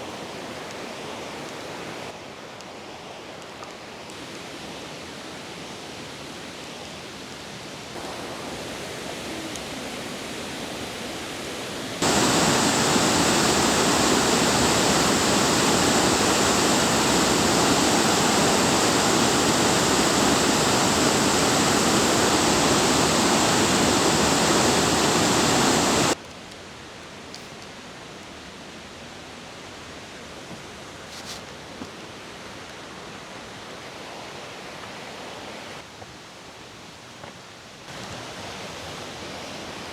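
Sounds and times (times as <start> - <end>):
waterfall rushing: 8.0 - 26.2.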